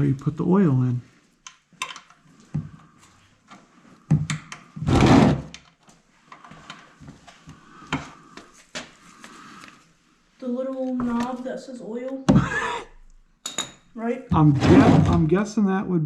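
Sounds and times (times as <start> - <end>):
tools and parts clunking: 1.5 - 2.2
loud scraping rush: 14.4 - 15.3.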